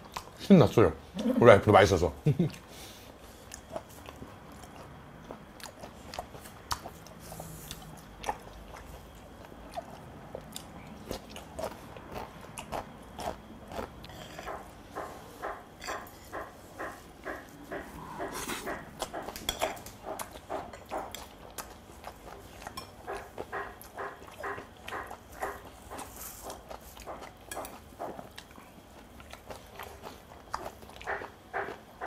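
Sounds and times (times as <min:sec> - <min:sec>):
wet chewing: 0:00.0 - 0:00.4, 0:02.4 - 0:32.0.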